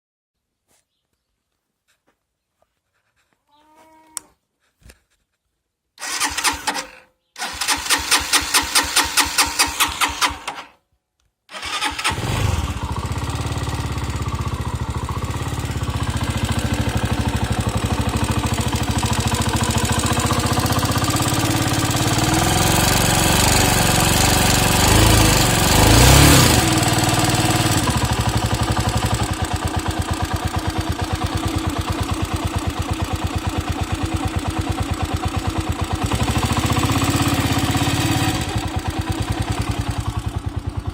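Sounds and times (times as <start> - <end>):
engine revving: 6.0 - 10.7, 11.5 - 40.9
motorcycle engine cranking: 6.0 - 10.8, 11.5 - 40.9
motorcycle engine idling: 11.6 - 40.9.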